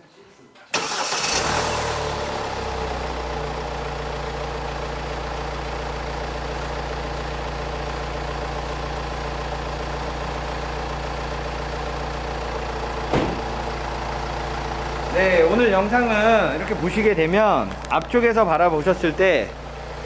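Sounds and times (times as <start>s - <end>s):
diesel engine idling: 0.7s - 20.0s
brief thump: 13.1s - 13.5s.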